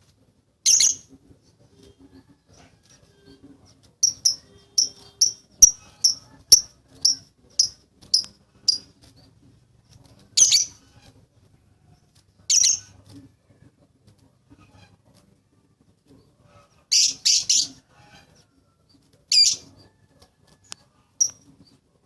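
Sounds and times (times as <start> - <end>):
lovebird chirping: 0.6 - 1.1, 4.0 - 8.9, 10.4 - 10.8, 16.9 - 17.8, 19.3 - 19.7.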